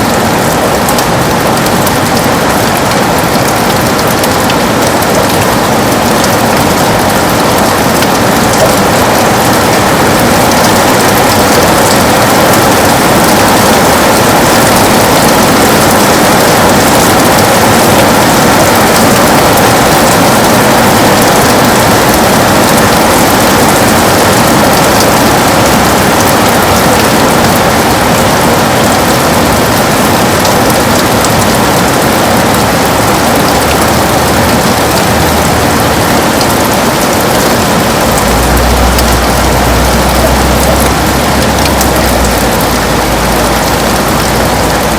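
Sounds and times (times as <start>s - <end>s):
heavy rain on window: 0.0s - 44.9s
low rumble: 37.8s - 44.7s.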